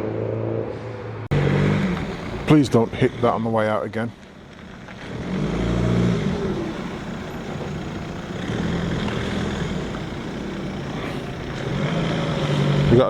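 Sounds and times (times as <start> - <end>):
car engine pulling away: 0.0 - 13.0.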